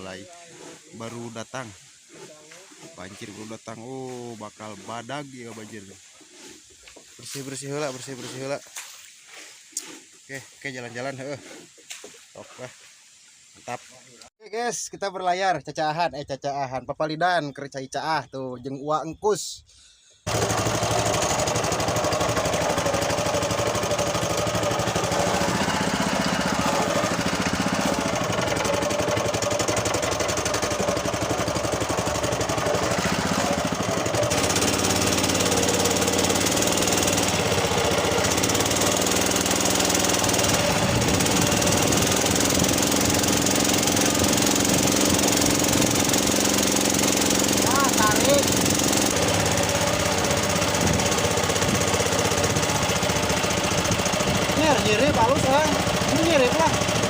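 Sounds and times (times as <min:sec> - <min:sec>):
boat engine chugging: 0:00.0 - 0:06.5, 0:20.3 - 0:57.0.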